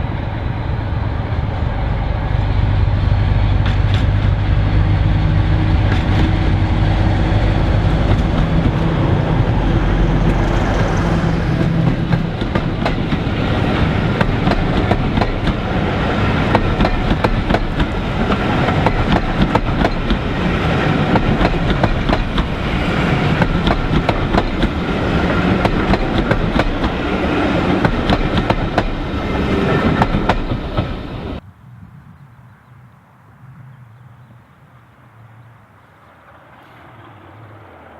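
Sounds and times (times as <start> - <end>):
diesel locomotive engine droning: 0.0 - 31.4
train wheels clattering over rail joints: 5.8 - 31.3.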